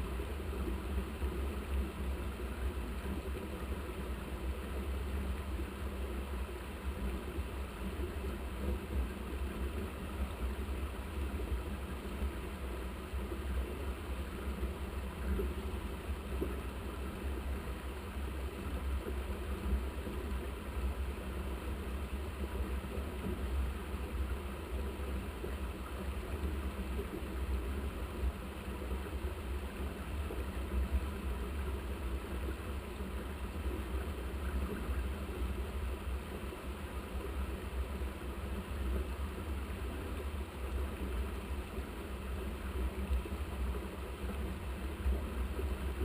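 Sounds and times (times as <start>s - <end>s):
low rumble with hiss: 0.0s - 46.0s.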